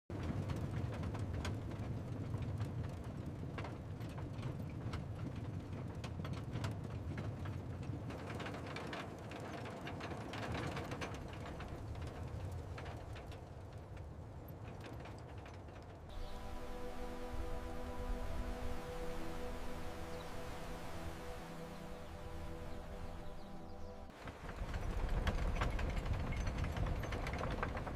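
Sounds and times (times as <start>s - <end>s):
steady low rumble: 16.1s - 26.1s.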